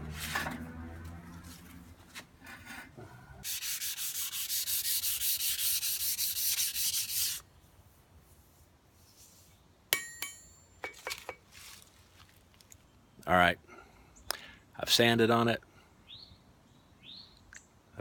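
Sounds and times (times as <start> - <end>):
sanding scratching on steel: 3.4 - 7.4
sharp metallic clink: 9.9 - 11.4.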